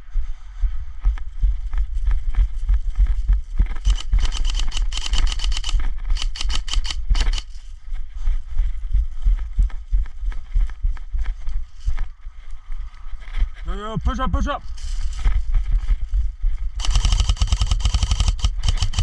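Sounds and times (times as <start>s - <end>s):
low wind rumble: 0.0s - 19.0s
running footsteps: 0.0s - 19.0s
dense rapid crackling: 3.0s - 7.5s, 16.8s - 19.0s.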